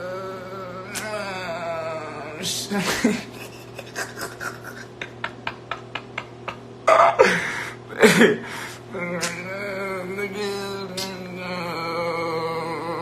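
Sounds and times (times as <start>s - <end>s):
man humming a tune: 0.0s - 3.2s, 5.6s - 13.0s
man making vocal clicks: 0.9s - 1.2s, 9.1s - 9.5s, 10.9s - 11.3s.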